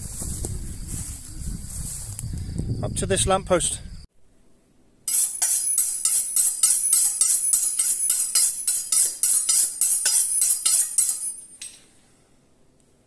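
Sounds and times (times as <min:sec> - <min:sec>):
jingling percussion music: 0:05.1 - 0:11.7.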